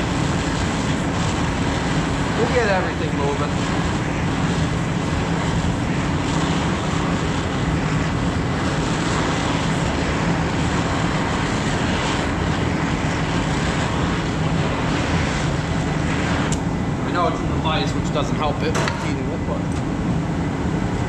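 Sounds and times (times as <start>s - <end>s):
torch hissing: 0.0s - 19.4s.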